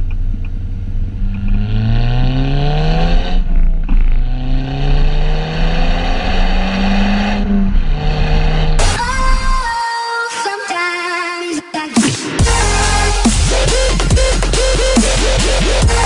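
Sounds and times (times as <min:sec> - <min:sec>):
wind and road noise: 0:00.0 - 0:09.2
car engine accelerating: 0:00.0 - 0:09.8, 0:12.4 - 0:16.0.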